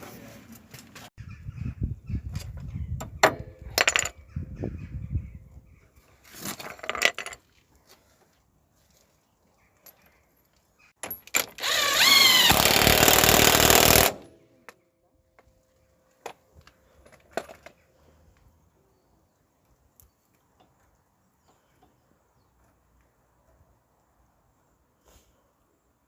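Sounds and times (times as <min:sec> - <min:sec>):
power tool whining: 0:11.4 - 0:14.3.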